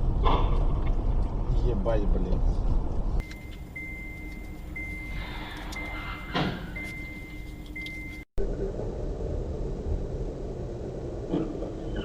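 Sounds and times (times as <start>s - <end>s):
road noise inside car: 0.0s - 12.0s
high electronic beep: 3.2s - 8.3s.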